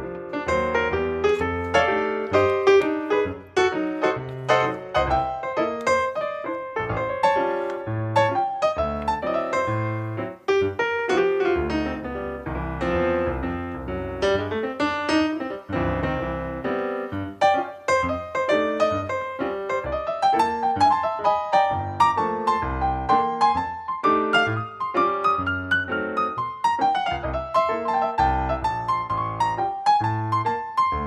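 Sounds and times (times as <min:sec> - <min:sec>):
piano music: 0:00.0 - 0:31.0.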